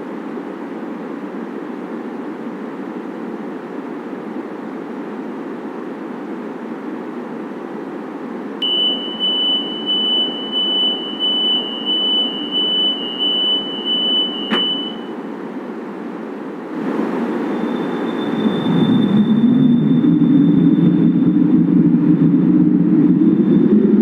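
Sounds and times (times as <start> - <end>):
train car rumble: 5.6 - 24.0
high electronic beeper: 8.6 - 15.2.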